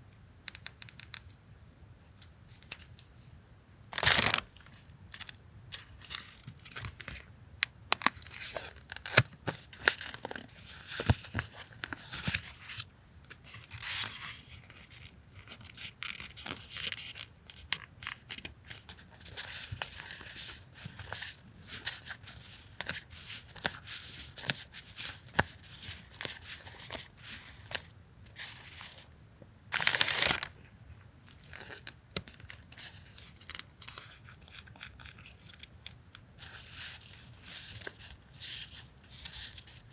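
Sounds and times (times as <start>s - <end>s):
packaging tearing: 4.0s - 4.5s, 29.8s - 30.6s
packaging crinkling and rustling: 4.0s - 7.2s, 29.7s - 35.7s.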